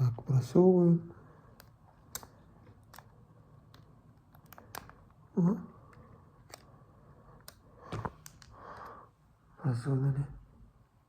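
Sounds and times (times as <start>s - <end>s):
light clicks and taps of small parts: 1.5s - 5.2s, 5.9s - 6.7s, 7.3s - 9.0s.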